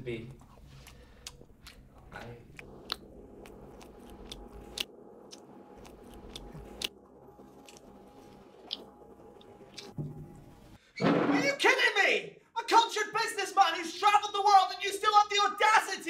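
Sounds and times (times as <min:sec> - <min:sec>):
faint low hum: 0:00.0 - 0:10.8
man chewing noisily: 0:00.2 - 0:10.4.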